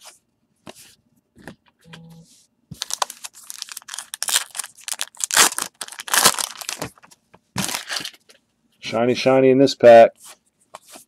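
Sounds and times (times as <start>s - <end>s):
wrapper crinkling and tearing: 2.8s - 8.2s.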